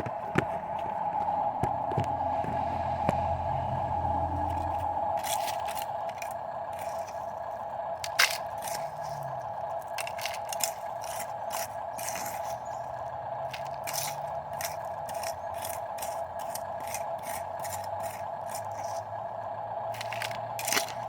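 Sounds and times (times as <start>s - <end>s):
electric motor and gearbox whining: 0.0s - 21.0s
crushed stone scraping and crunching: 4.4s - 19.1s, 19.9s - 21.0s.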